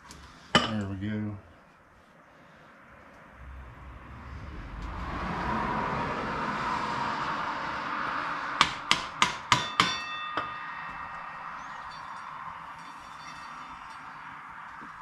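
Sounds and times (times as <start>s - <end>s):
highway traffic rushing: 2.1s - 15.0s
hammer striking metal: 8.6s - 13.5s.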